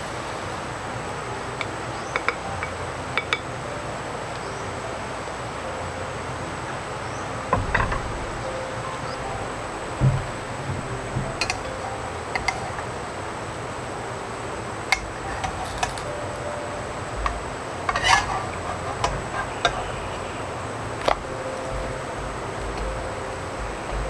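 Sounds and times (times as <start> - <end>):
background hiss: 0.0 - 24.0
utensils clinking on dishes: 14.9 - 16.2, 17.2 - 20.0.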